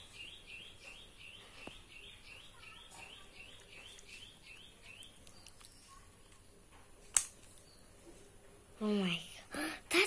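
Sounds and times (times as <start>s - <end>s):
bird chirping: 0.0s - 6.8s, 7.5s - 8.2s.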